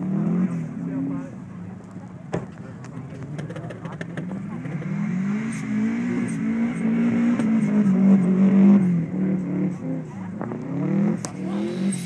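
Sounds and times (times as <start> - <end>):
car engine revving: 3.9 - 12.0.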